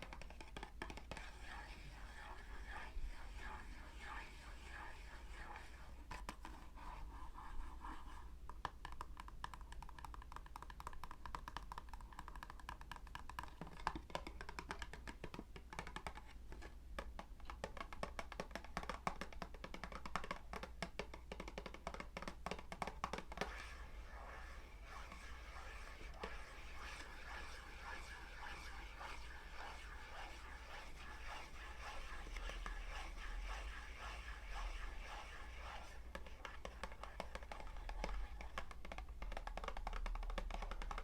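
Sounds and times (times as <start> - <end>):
faint steady hum: 0.0 - 10.6, 15.3 - 41.0
fingers tapping and scratching: 8.5 - 41.0.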